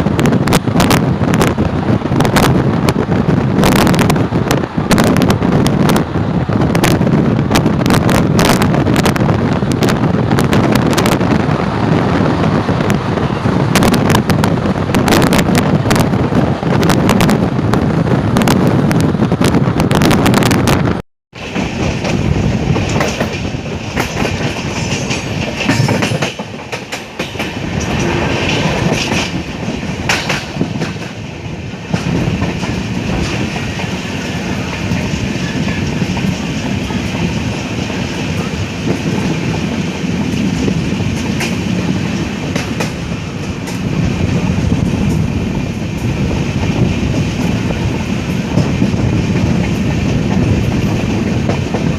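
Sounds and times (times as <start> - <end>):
heavy train rumble: 0.0 - 51.9
train wheels clattering over rail joints: 21.4 - 51.9.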